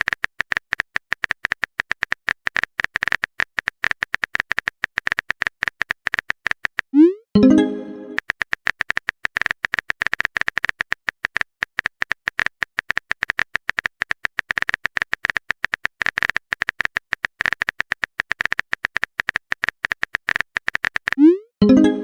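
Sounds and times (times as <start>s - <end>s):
typing clicks: 0.0s - 21.9s.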